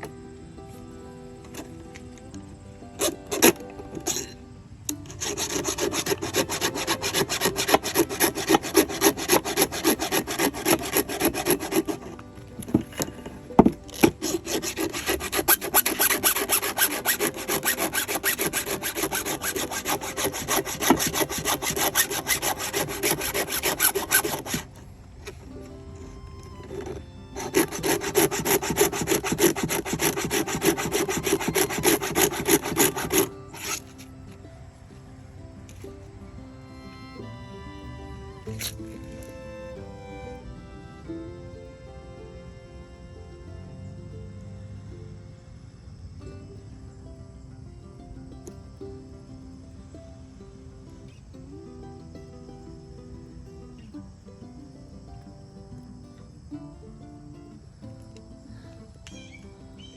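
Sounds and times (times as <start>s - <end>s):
file rasping on chainsaw chain: 3.0s - 24.8s, 26.8s - 34.0s, 38.5s - 39.3s.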